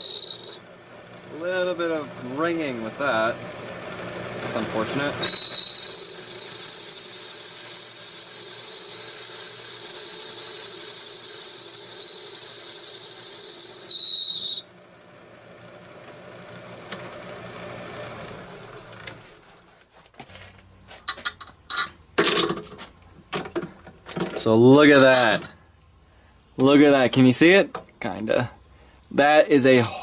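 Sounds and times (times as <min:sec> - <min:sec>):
machine running: 0:00.0 - 0:06.8.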